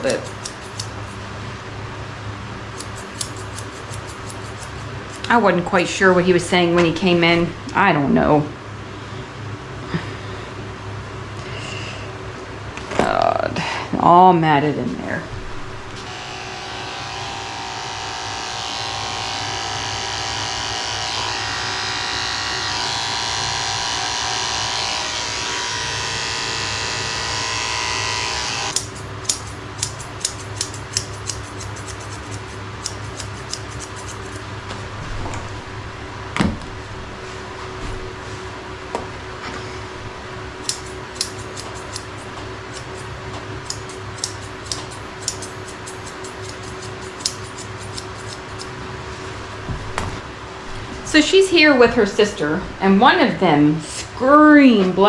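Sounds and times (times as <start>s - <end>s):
electric clippers running: 0.0s - 1.2s, 2.7s - 5.4s, 16.0s - 34.5s, 40.6s - 48.8s
low hum: 0.0s - 24.2s, 31.5s - 55.0s.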